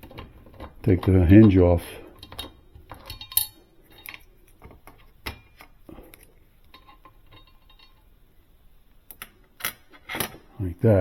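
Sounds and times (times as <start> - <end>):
metallic clicks and clinks: 2.2 - 5.5.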